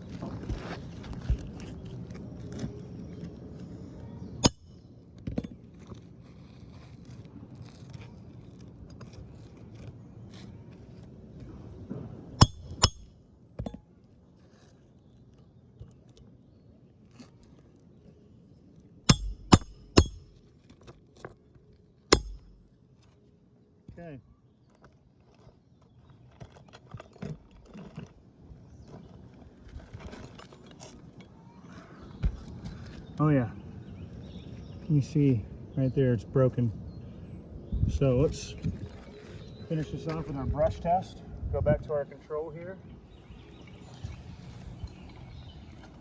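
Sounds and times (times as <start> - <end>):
light scraping of shingles: 5.5 - 11.6, 24.6 - 33.2.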